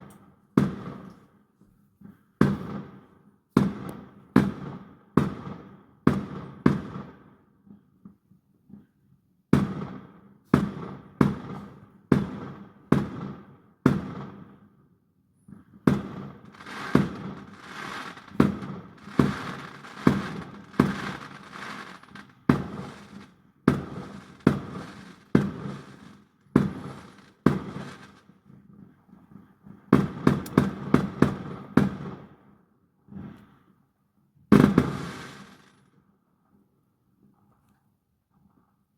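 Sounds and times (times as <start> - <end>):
fireworks bangs with echo: 0.6 - 1.1, 2.4 - 7.4, 9.6 - 14.8, 15.5 - 28.4, 29.9 - 32.4, 34.5 - 35.9
fireworks crackling: 15.9 - 28.3, 34.5 - 35.9.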